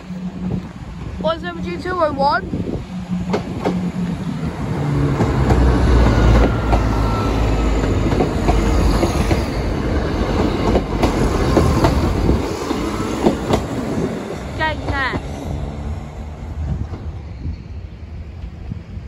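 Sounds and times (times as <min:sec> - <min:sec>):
wheels clicking over rail joints: 0:00.0 - 0:13.8
diesel train engine drone: 0:00.0 - 0:19.0
train rumble: 0:00.0 - 0:19.0.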